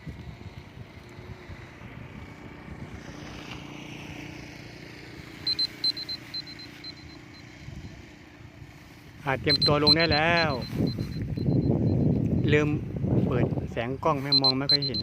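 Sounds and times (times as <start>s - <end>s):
wind buffeting microphone: 0.0s - 3.2s, 9.4s - 14.2s
short high-pitched electronic beeps: 5.4s - 8.0s, 9.3s - 12.7s, 14.1s - 15.0s.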